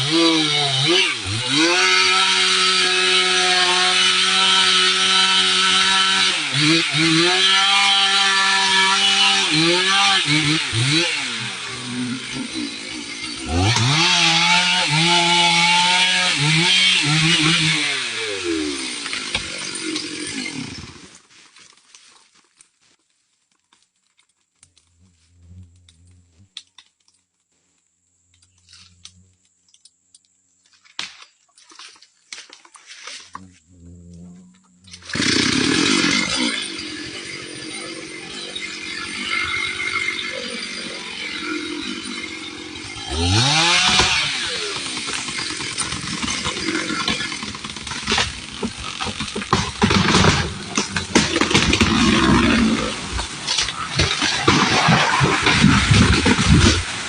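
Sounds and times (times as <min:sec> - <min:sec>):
chainsaw cutting wood: 0:00.0 - 0:21.3, 0:34.8 - 0:57.0.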